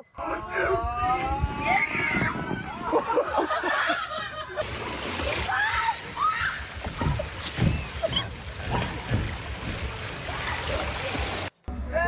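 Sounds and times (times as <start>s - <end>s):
water rushing: 0.4s - 11.6s
low knocks and splashes: 1.1s - 3.6s, 4.6s - 11.5s.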